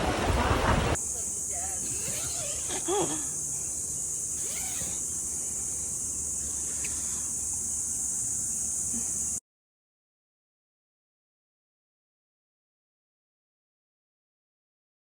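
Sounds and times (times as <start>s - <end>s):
insects droning: 0.0s - 9.4s.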